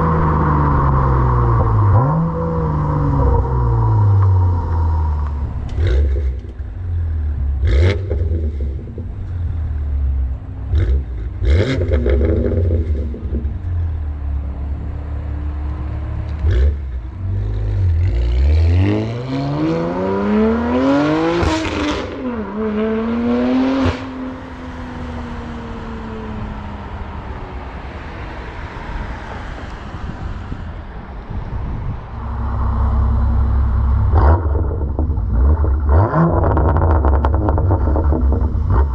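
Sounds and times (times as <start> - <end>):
car engine rumbling: 0.0 - 38.9
engine revving hard: 17.9 - 24.2.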